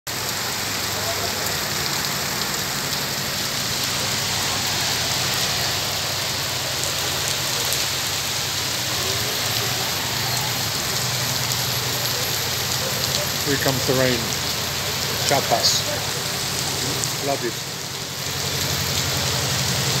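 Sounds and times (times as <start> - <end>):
rain on a paved street: 0.1 - 20.0.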